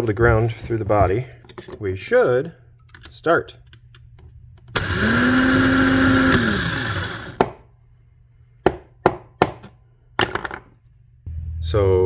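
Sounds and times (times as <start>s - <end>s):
starter motor whirring: 4.7s - 7.4s.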